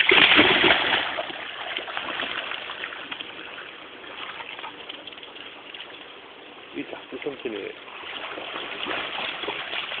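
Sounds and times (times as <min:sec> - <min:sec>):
water splashing: 0:00.0 - 0:06.2, 0:07.8 - 0:10.0.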